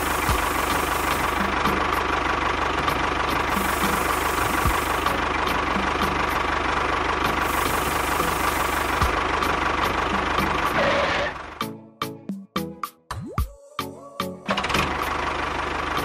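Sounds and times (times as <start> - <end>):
toy bulldozer motor whining: 3.5 - 5.0, 10.7 - 11.4.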